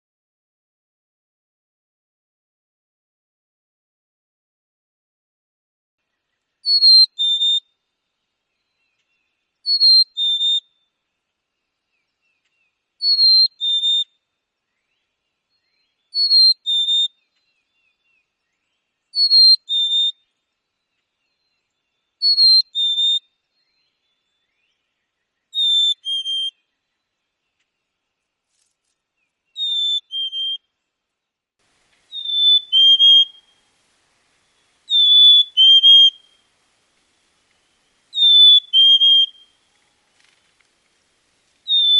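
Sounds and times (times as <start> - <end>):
chickadee whistled song: 6.6 - 7.7, 9.6 - 10.8, 13.0 - 14.2, 15.6 - 17.2, 19.1 - 20.2, 22.2 - 23.8, 25.5 - 26.7, 29.5 - 30.7, 32.1 - 33.6, 34.9 - 36.4, 38.1 - 39.6, 41.6 - 41.9.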